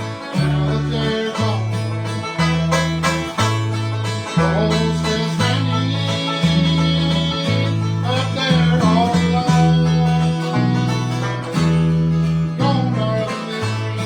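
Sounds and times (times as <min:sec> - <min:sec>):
banjo picking: 0:00.0 - 0:14.0
bass line: 0:00.0 - 0:14.0
guitar picking: 0:00.0 - 0:14.0.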